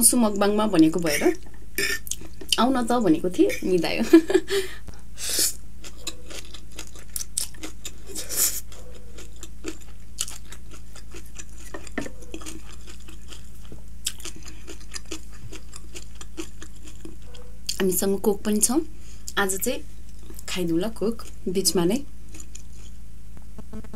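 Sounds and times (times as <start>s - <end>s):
chewing noodles: 1.4s - 2.6s, 5.8s - 17.8s.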